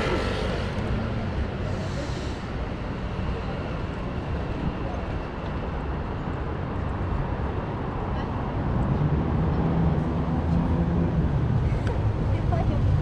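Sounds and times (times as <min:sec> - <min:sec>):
vehicle passing: 0:00.0 - 0:02.4
faint voices of passers-by: 0:00.0 - 0:13.0
traffic rumble: 0:00.0 - 0:13.0.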